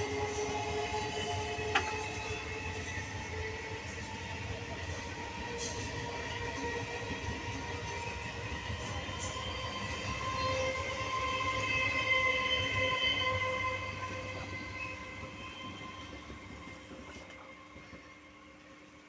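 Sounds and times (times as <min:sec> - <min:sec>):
electric train running past: 0:00.0 - 0:19.0.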